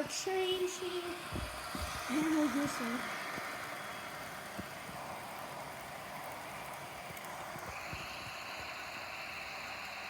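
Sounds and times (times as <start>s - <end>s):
electric fans hissing: 0.0s - 10.0s
faint clicks: 4.3s - 9.8s.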